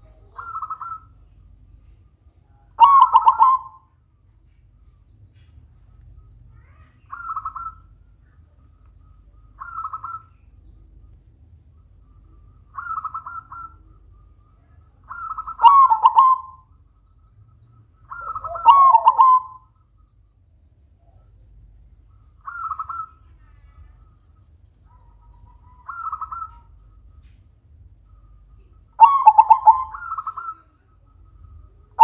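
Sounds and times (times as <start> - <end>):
dove cooing: 0.0 - 1.1, 2.8 - 3.9, 12.7 - 14.1, 15.1 - 16.7, 18.1 - 19.6, 24.9 - 26.8, 29.0 - 30.8.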